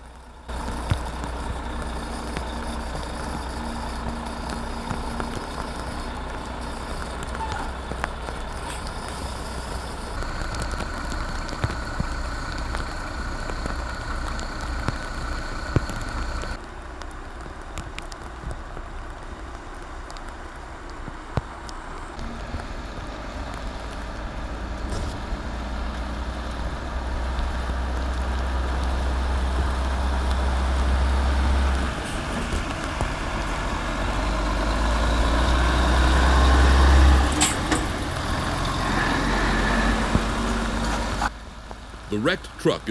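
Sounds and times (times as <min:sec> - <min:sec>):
steady whine: 0:00.0 - 0:16.6
truck diesel engine rumble: 0:00.0 - 0:42.9.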